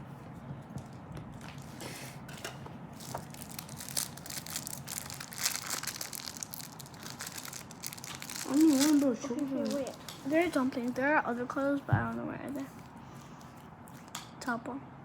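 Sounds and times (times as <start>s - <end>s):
plastic wrapping crinkling: 2.9s - 11.2s.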